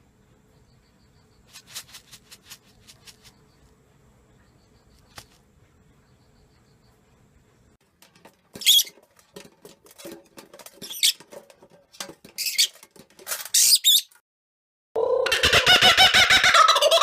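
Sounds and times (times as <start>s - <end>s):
bird high-pitched squeaks: 8.6s - 8.9s, 10.8s - 11.2s, 12.4s - 12.8s, 13.5s - 14.2s.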